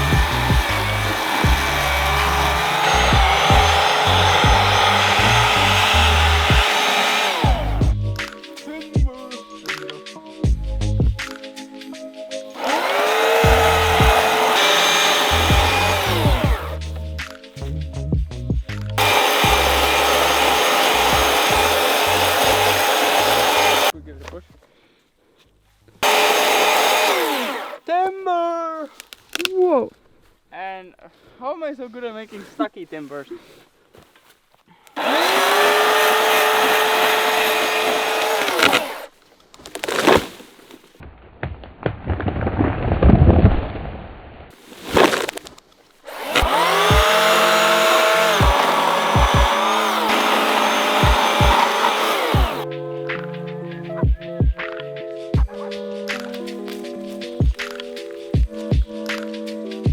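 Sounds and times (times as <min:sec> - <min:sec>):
chainsaw at full throttle: 0:00.0 - 0:08.0, 0:12.5 - 0:16.8, 0:19.0 - 0:23.9, 0:26.0 - 0:27.8, 0:35.0 - 0:39.1, 0:39.7 - 0:40.3, 0:46.1 - 0:52.6
power saw cutting wood: 0:00.0 - 0:08.0, 0:12.5 - 0:16.8, 0:19.0 - 0:23.9, 0:26.0 - 0:27.8, 0:35.0 - 0:39.1, 0:39.7 - 0:40.4, 0:46.1 - 0:52.6
low rumbling: 0:00.0 - 0:08.2
music with a beat: 0:07.5 - 0:12.6, 0:15.5 - 0:19.6, 0:52.6 - 0:59.9.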